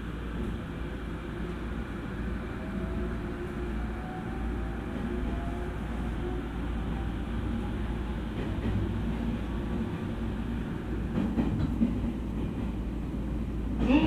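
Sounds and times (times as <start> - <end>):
train wheels rumbling on rail: 0.0 - 14.0
rail-joint clicks: 11.1 - 12.8.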